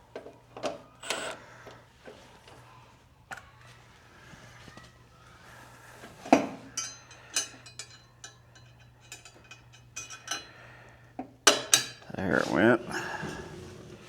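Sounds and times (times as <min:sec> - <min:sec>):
metal tools clinking: 0:06.7 - 0:10.6.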